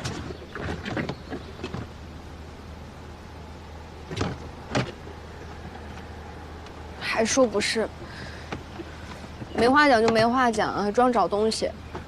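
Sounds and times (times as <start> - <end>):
steady low hum: 0.0 - 12.0
rummaging clicks and knocks: 8.0 - 10.4.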